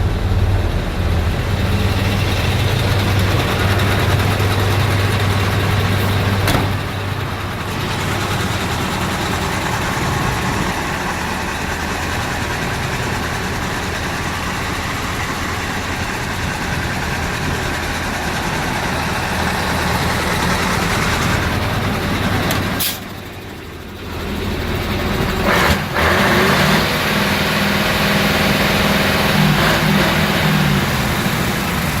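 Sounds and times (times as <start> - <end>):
truck diesel engine idling: 0.0 - 32.0.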